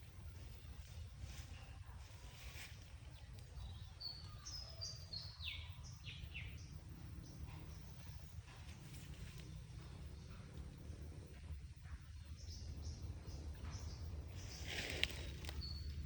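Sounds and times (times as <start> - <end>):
steady low rumble: 0.0 - 4.3, 4.9 - 16.0
songbird singing: 0.0 - 16.0.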